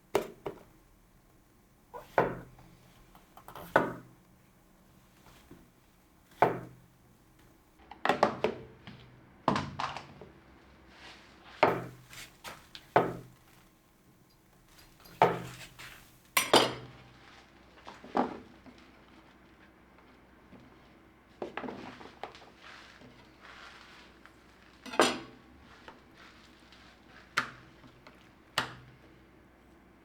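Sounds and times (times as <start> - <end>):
kitchenware clattering: 14.8 - 16.9, 24.9 - 25.4.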